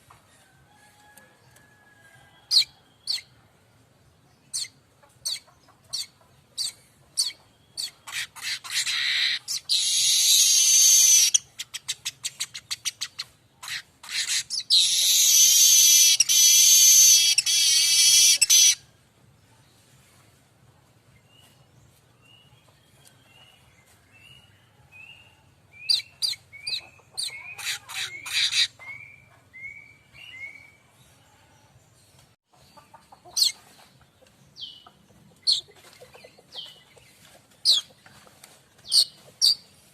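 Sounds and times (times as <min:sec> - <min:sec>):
weaver bird singing: 0:14.3 - 0:18.8.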